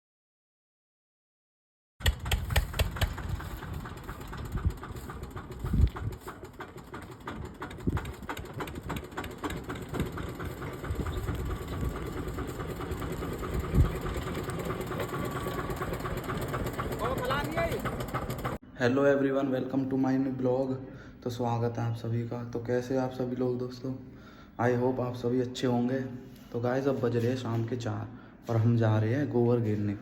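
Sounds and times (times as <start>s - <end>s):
diesel tractor engine idling: 2.0s - 18.6s.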